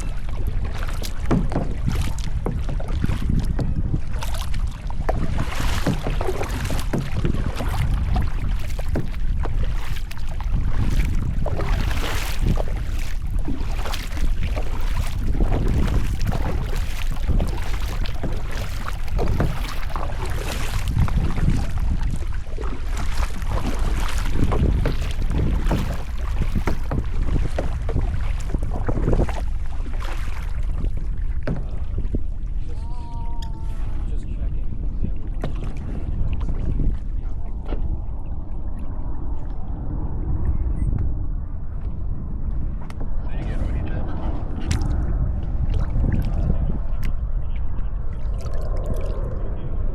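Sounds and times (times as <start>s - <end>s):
paddle splashing in water: 0.0s - 34.1s, 34.8s - 39.7s, 44.2s - 49.4s
wind rumble on microphone: 0.0s - 49.9s.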